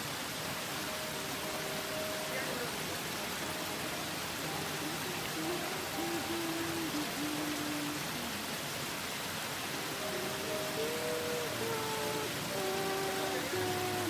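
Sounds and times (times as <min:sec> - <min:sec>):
waterfall rushing: 0:00.0 - 0:14.0
faint tune of held notes: 0:00.6 - 0:08.6, 0:09.6 - 0:14.0.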